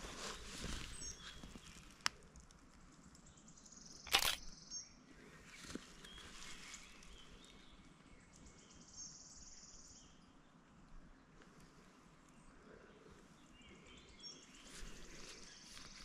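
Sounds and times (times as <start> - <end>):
short crackling noise: 4.1 - 4.4
sharp click: 4.1 - 4.5.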